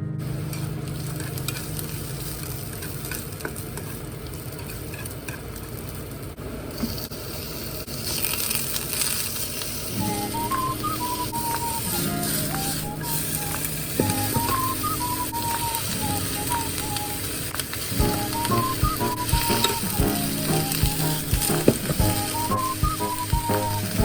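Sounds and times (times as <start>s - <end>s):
food sizzling in frying pan: 0.2s - 6.2s, 6.8s - 24.0s
background music: 10.0s - 24.0s.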